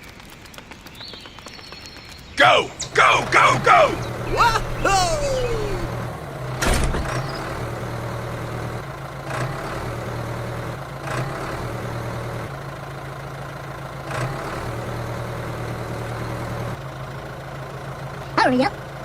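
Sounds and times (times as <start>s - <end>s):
engine idling: 2.4s - 19.0s.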